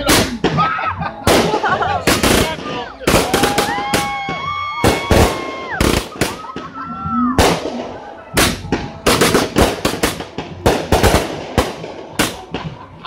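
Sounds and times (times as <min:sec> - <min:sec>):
firework shells bursting: 0:07.4 - 0:12.7.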